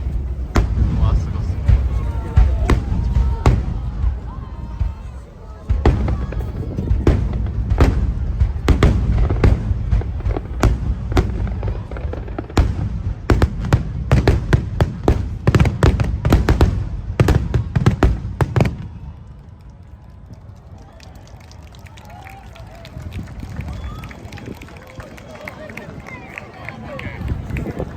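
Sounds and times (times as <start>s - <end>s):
deep rumbling boom: 0.0s - 18.5s
fireworks bursting with sharp bangs: 0.0s - 19.1s.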